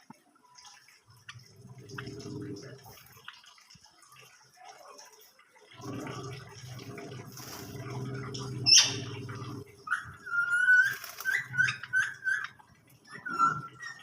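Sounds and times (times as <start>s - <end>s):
cage birds chirping: 7.4s - 14.0s.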